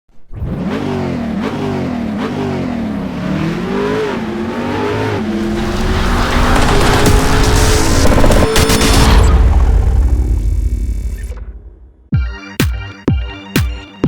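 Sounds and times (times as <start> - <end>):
engine revving: 0.2 - 11.4.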